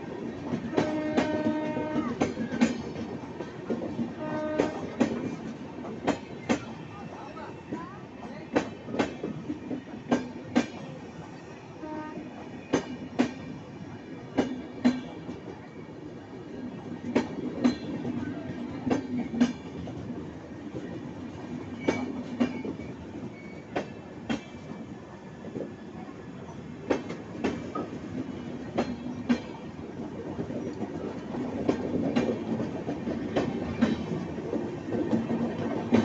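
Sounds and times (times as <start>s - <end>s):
train rumble: 0.0s - 36.0s
train wheels clickety-clack: 0.0s - 36.0s.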